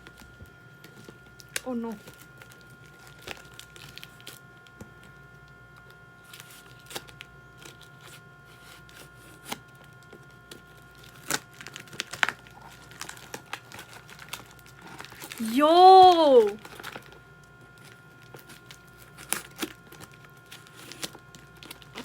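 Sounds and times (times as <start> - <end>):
packaging crinkling: 10.9 - 15.4.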